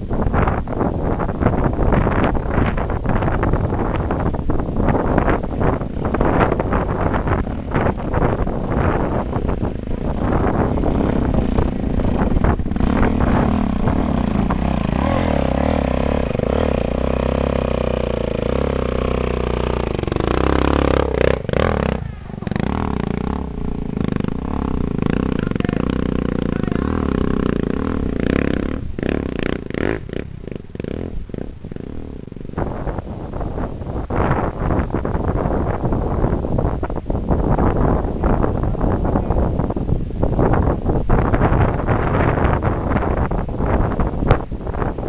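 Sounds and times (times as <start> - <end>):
dirt bike engine revving: 0.4 - 36.3.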